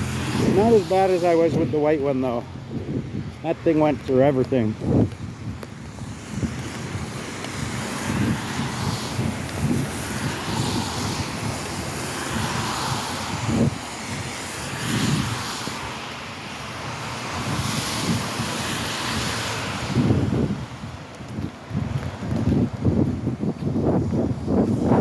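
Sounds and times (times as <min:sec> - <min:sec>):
steady outdoor hiss: 0:00.0 - 0:02.6, 0:03.4 - 0:04.7
wind buffeting microphone: 0:00.0 - 0:25.0.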